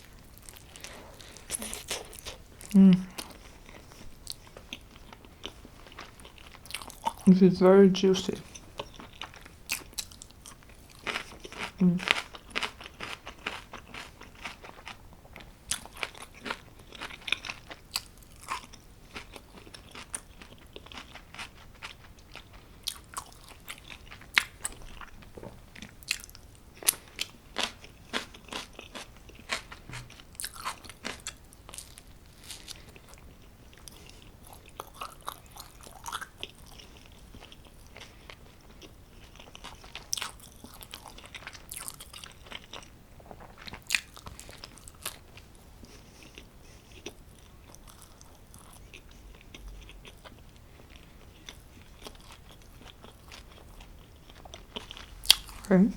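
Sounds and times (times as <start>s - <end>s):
person chewing with mouth clicks: 0.4s - 7.3s, 8.3s - 55.7s.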